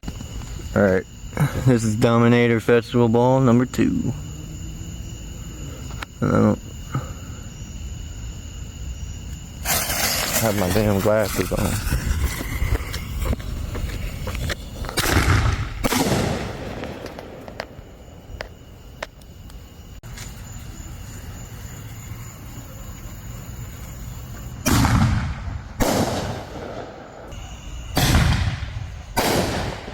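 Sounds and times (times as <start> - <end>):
firework shells banging: 9.6 - 19.2.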